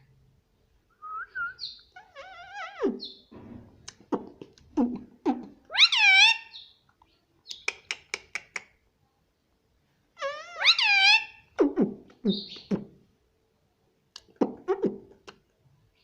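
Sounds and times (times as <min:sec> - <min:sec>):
parrot squawking: 0:01.5 - 0:03.3, 0:04.0 - 0:06.7, 0:10.2 - 0:12.8
parrot clicking: 0:07.5 - 0:08.7.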